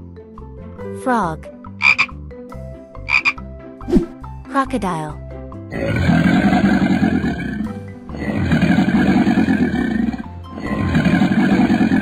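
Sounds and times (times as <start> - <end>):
background music: 0.0 - 12.0
crocodile growl effect: 5.7 - 12.0.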